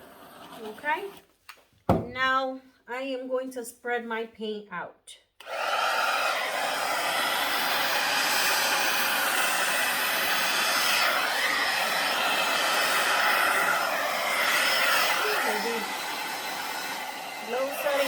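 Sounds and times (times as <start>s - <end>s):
hair dryer blowing: 5.4s - 18.0s.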